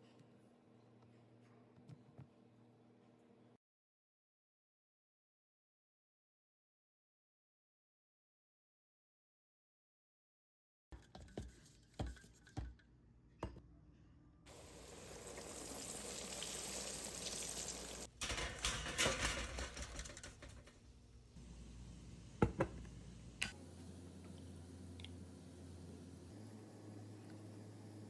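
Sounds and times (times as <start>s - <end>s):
food frying in hot oil: 14.5s - 18.1s.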